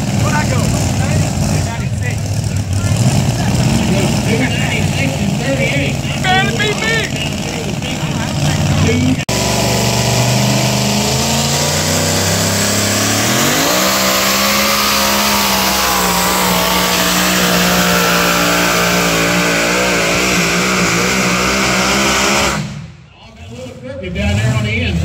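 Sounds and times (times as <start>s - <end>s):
truck engine running flat out: 0.0s - 25.0s.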